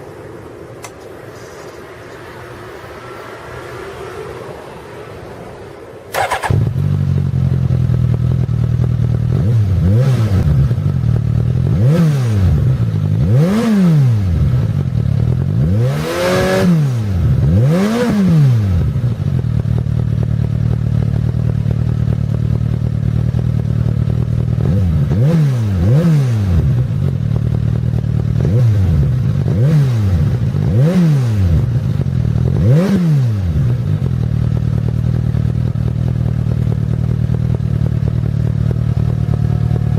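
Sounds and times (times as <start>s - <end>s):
motorcycle engine idling: 6.1s - 11.8s, 18.8s - 25.1s, 26.6s - 29.6s, 33.4s - 39.9s
engine throttle blips: 6.1s - 15.9s, 24.2s - 39.9s.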